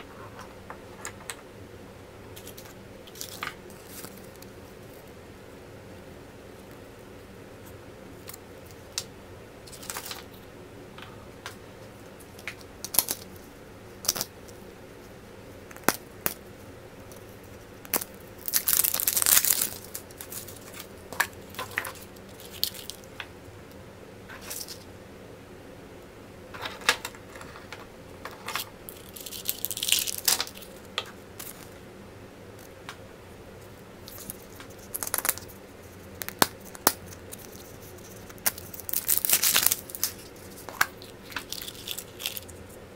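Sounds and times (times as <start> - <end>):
faint steady hum: 0.0 - 42.9
wrappers crinkling and tearing: 17.9 - 23.1, 28.5 - 30.8, 36.2 - 42.6.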